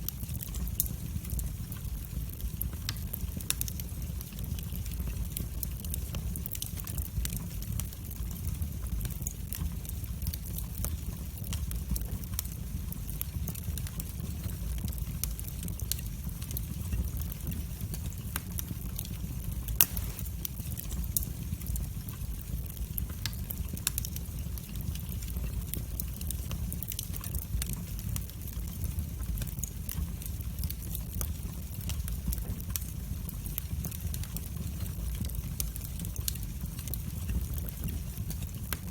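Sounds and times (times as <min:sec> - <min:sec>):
fire crackling and snapping: 0:00.0 - 0:38.9
low rumble of flames: 0:00.0 - 0:38.9
loud fire pop: 0:19.8 - 0:20.3.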